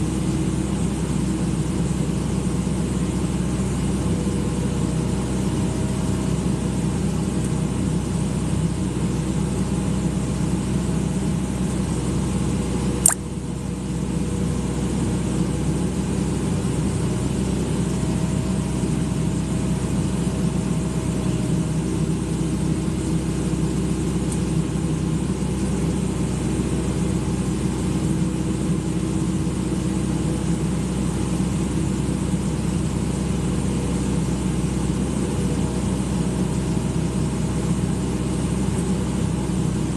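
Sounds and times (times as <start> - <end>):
excavator diesel engine running: 0.0 - 39.9
sharp click: 13.0 - 13.2.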